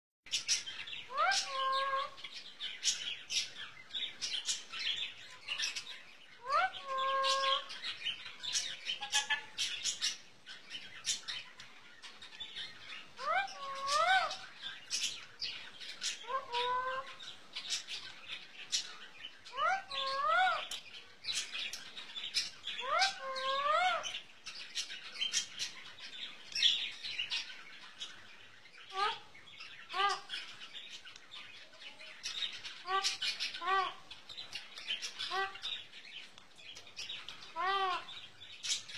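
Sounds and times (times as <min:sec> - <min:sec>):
parrot wavering calls: 0:01.1 - 0:02.2, 0:06.4 - 0:07.8, 0:13.2 - 0:14.5, 0:16.2 - 0:17.2, 0:19.5 - 0:20.8, 0:22.8 - 0:24.1, 0:32.8 - 0:34.1, 0:37.5 - 0:38.1.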